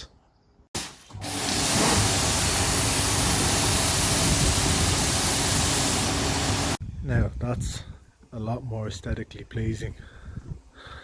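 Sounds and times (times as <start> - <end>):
steam jet hissing: 1.2 - 6.8.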